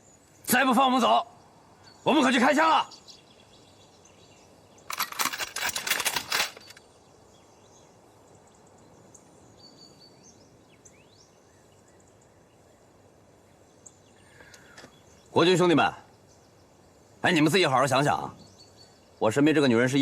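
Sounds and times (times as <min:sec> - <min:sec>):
faint bird chirps: 0:00.0 - 0:05.7, 0:06.5 - 0:20.0
burst of sharp clicks and clatter: 0:04.9 - 0:06.8.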